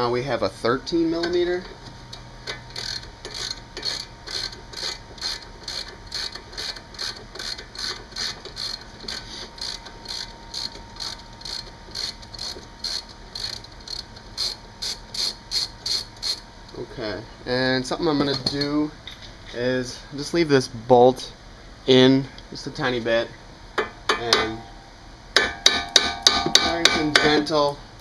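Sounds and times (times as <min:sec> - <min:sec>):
ratchet wrench clicking: 0:02.5 - 0:16.4.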